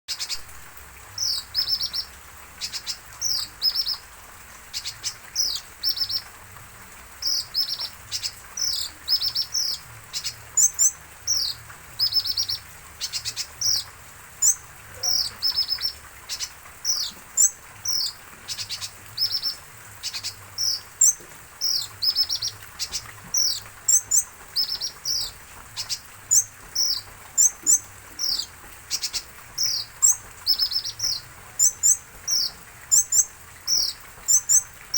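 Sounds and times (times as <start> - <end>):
sunbird chirping: 7.2 - 34.7.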